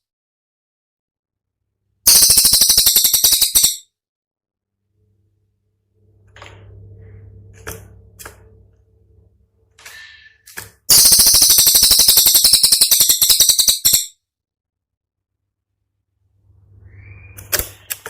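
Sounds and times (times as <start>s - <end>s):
low hum: 4.6s - 10.4s, 15.2s - 17.6s
songbird high-pitched trill: 10.9s - 14.1s.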